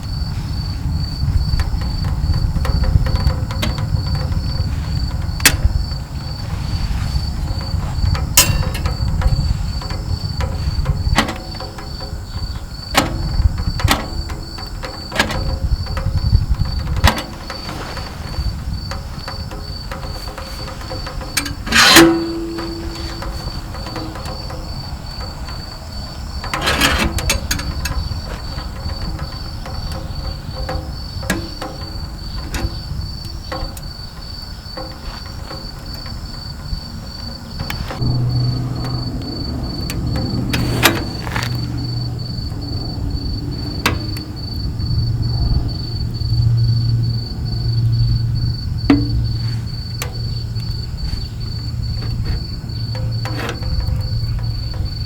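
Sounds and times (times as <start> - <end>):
wood crackling in stove: 0.0 - 45.4, 47.7 - 55.0
cricket chirping: 0.0 - 55.0
low rumble: 37.7 - 55.0.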